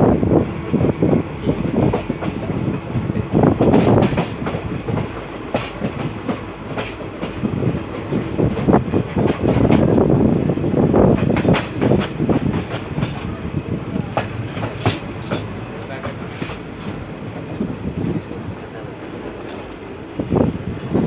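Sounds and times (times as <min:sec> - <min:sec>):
dense train rumble: 0:00.0 - 0:21.0
train wheels clattering over rail joints: 0:01.6 - 0:10.2, 0:11.0 - 0:18.0.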